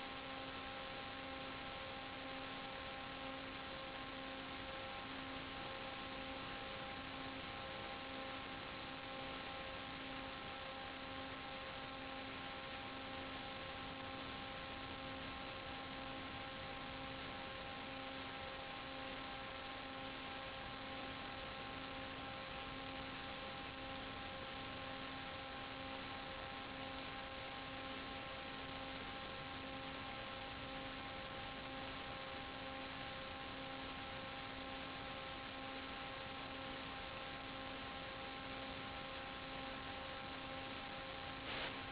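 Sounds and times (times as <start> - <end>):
electrical hum: 0.0 - 41.9
even hiss: 41.3 - 41.9.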